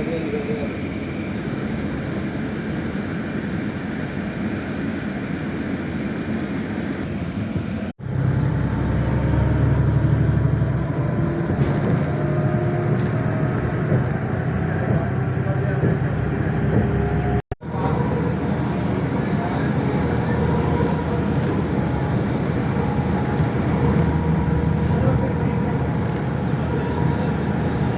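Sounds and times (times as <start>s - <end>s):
car engine and road noise: 0.0s - 27.9s.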